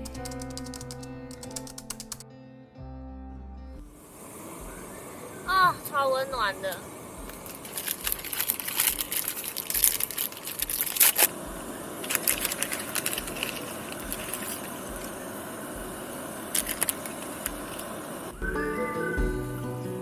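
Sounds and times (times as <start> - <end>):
background hiss: 3.8 - 20.0
crinkling handling noise: 7.3 - 18.0.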